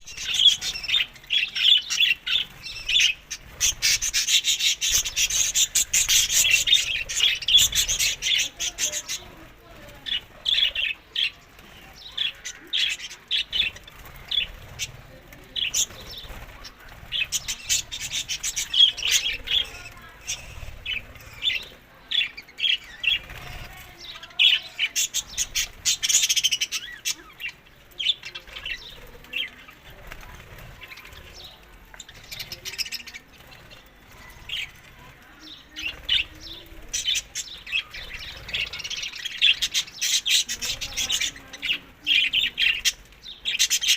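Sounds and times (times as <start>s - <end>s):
budgerigars chirping: 0.0s - 30.0s.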